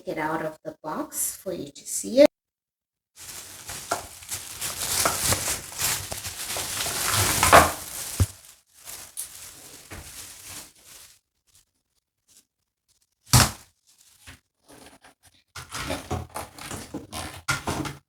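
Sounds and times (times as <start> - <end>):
packaging rustling and crinkling: 3.2 - 11.7, 13.3 - 14.4.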